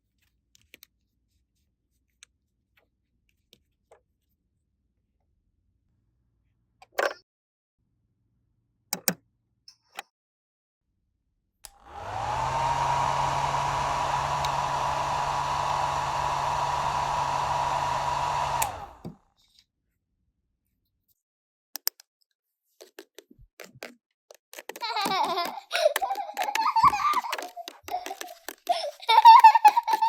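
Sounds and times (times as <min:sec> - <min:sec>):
hair dryer blowing: 0:11.7 - 0:19.2
hair dryer switch click: 0:11.7 - 0:19.2.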